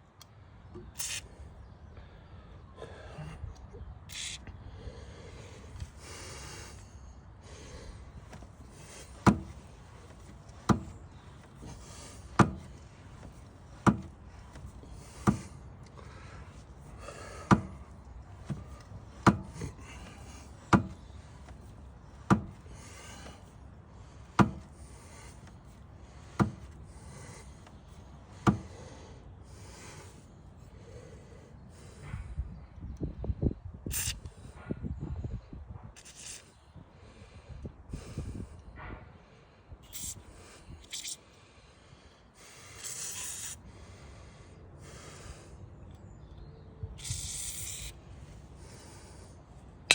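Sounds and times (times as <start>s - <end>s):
sharp knocks: 9.2s - 9.6s, 10.6s - 11.6s, 12.4s - 12.8s, 13.8s - 15.5s, 18.4s - 19.8s, 20.7s - 21.0s, 22.3s - 22.6s, 24.4s - 24.7s.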